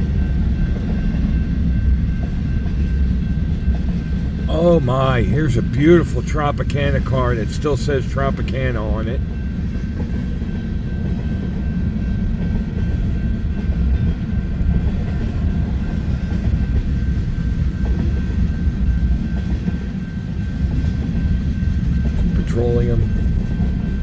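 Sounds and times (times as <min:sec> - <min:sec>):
freight train wheels rumbling on rail: 0:00.0 - 0:24.0.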